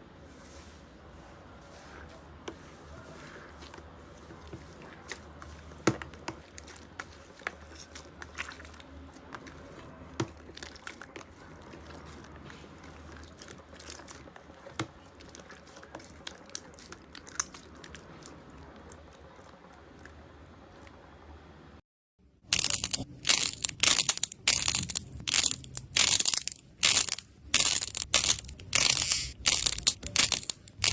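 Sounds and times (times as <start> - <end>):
slime clicking and popping: 22.6 - 30.9.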